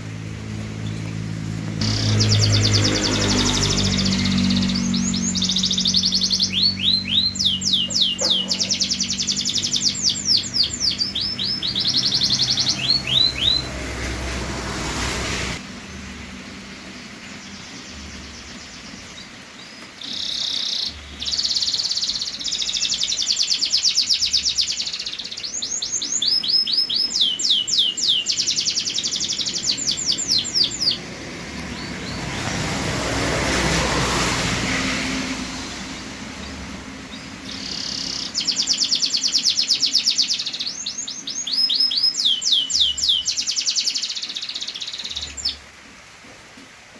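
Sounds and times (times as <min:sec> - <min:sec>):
rush of noise: 0:00.0 - 0:17.8
canary singing in trills: 0:00.7 - 0:14.5, 0:17.2 - 0:34.0, 0:34.6 - 0:45.6.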